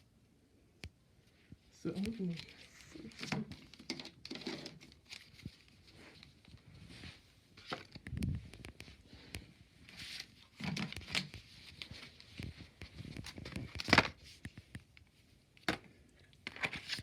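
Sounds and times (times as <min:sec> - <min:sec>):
packaging rustling and crinkling: 0:02.0 - 0:15.0.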